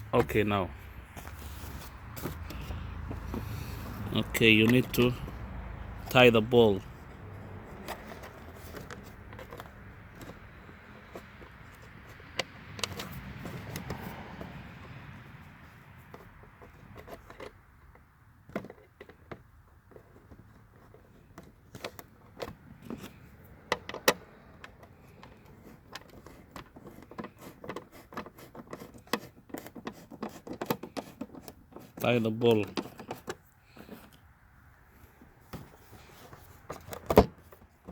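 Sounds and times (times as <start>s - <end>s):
hand tool and plastic parts clicking: 0.0s - 37.9s.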